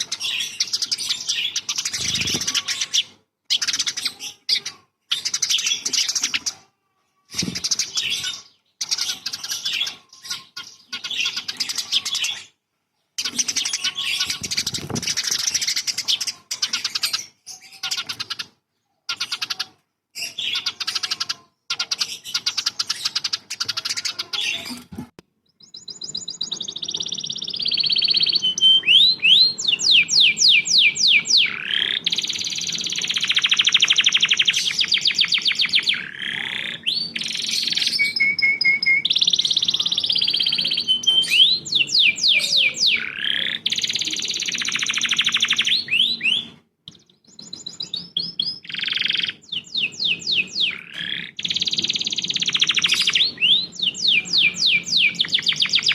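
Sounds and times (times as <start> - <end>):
songbird singing chirps and trills: 25.4 - 55.9.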